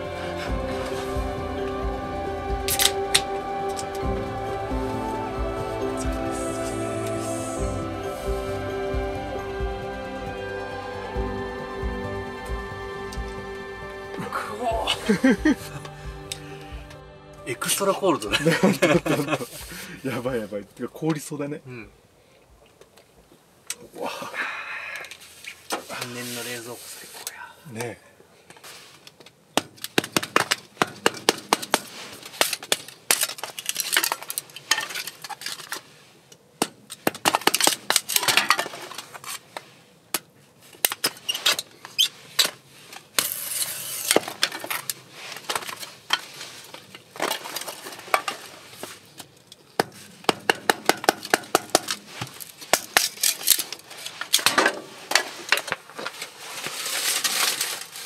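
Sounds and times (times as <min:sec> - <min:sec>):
hatchet splitting firewood: 0:29.5 - 0:35.6, 0:36.6 - 0:39.4, 0:49.8 - 0:55.8.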